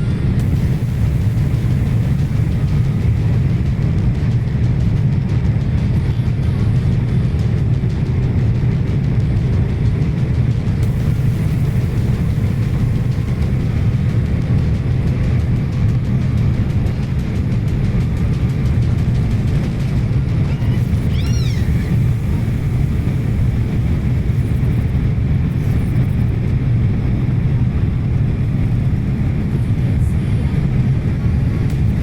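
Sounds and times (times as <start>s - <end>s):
airliner cabin rumble: 0.0s - 32.0s
high squeal: 20.4s - 22.6s.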